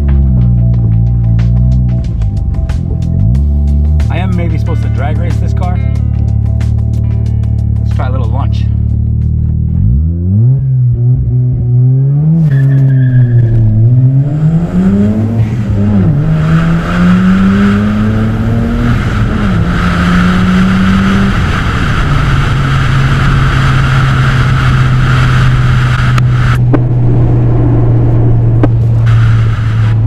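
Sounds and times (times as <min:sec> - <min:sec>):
wind and road noise: 0:00.0 - 0:30.0
rotary engine accelerating: 0:08.7 - 0:30.0.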